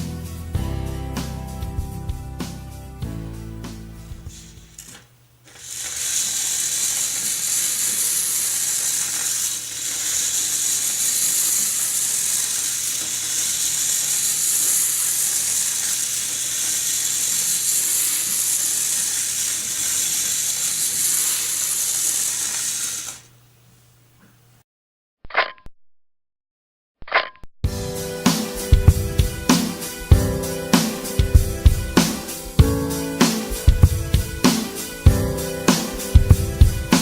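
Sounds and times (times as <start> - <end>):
magnets rattling along copper wire: 4.3 - 23.2.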